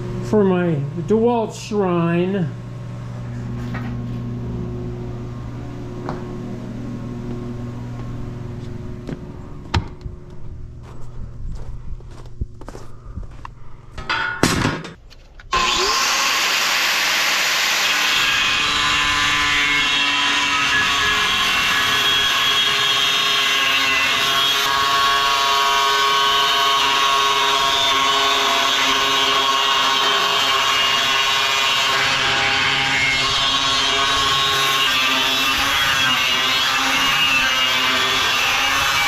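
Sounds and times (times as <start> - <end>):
handling knocks and clatter: 14.0 - 15.4
power tool running: 15.5 - 39.0.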